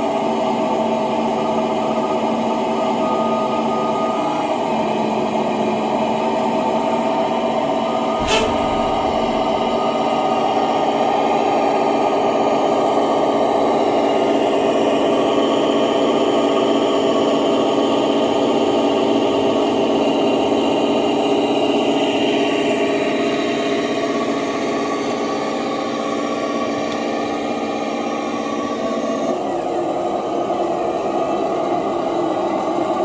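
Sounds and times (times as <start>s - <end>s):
sharp click: 8.2s - 10.3s.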